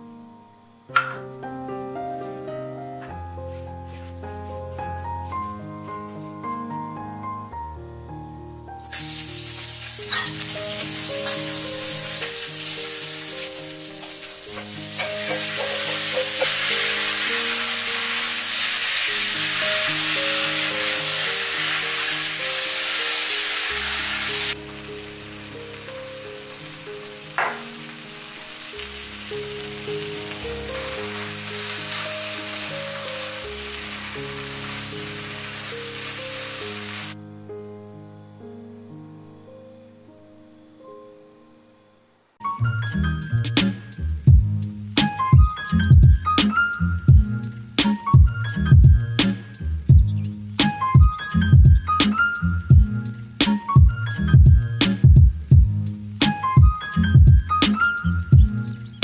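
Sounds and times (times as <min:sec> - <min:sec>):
soft background music: 0:00.0 - 0:59.0
food sizzling in hot oil: 0:08.8 - 0:37.2
spatulas tossing food in wok: 0:09.1 - 0:24.6, 0:29.0 - 0:37.1
spatula knocking on pan: 0:14.5 - 0:16.8, 0:27.4 - 0:27.8.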